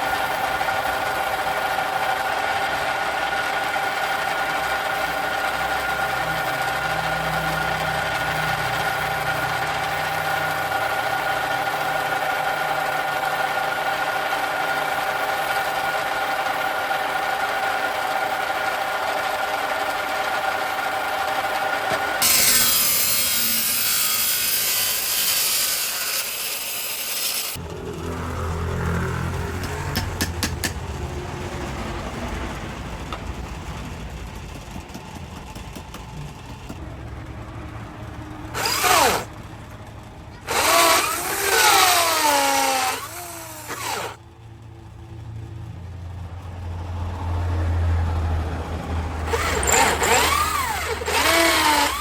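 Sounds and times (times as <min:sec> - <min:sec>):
power tool whining: 0:00.0 - 0:30.8, 0:38.5 - 0:39.4, 0:40.3 - 0:44.2, 0:49.2 - 0:52.0
harsh grinding noise: 0:00.0 - 0:30.9, 0:38.4 - 0:39.7, 0:40.3 - 0:44.2, 0:49.0 - 0:52.0.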